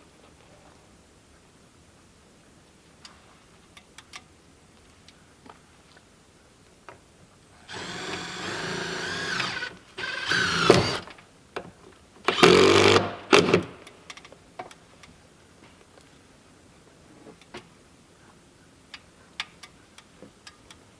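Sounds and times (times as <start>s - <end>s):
power drill whining: 7.7s - 11.1s, 12.3s - 13.1s.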